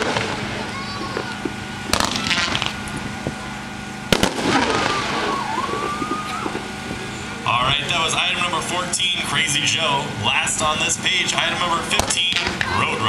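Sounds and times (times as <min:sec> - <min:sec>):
firework bangs: 0:00.0 - 0:07.4, 0:10.3 - 0:12.8
firework crackling: 0:00.0 - 0:12.9
thin wavering whistle: 0:04.6 - 0:06.8.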